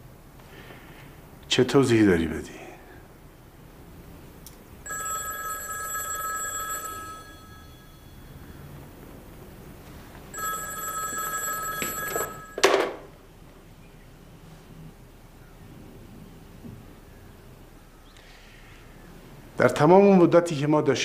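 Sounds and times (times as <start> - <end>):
telephone bell ringing: 4.8 - 8.8, 10.3 - 13.1.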